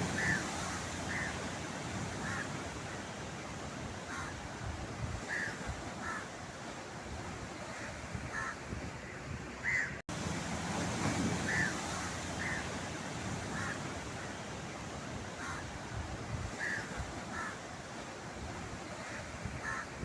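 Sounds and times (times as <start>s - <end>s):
bird calling: 0.0s - 1.6s, 11.4s - 12.8s
surf rushing: 0.0s - 20.0s.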